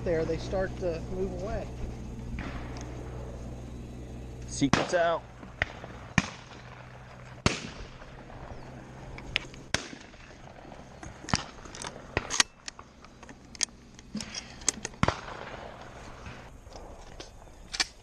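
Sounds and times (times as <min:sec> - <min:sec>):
shotgun shots with echo: 0:04.6 - 0:08.4, 0:09.7 - 0:10.7, 0:15.0 - 0:16.4.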